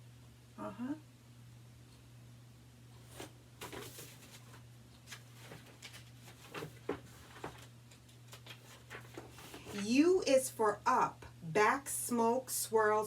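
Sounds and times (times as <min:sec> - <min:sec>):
faint steady hum: 0:00.0 - 0:13.0
book pages rustling and clicking: 0:03.0 - 0:09.9.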